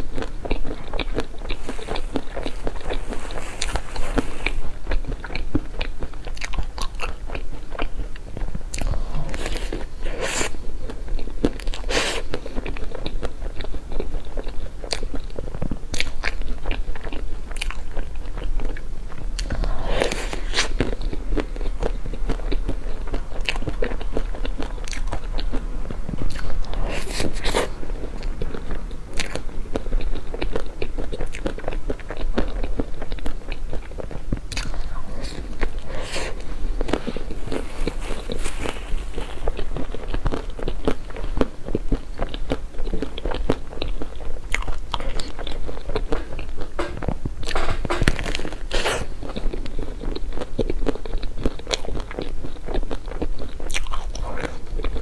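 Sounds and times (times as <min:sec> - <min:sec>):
biting and chewing crunchy cake: 0:00.0 - 0:55.0.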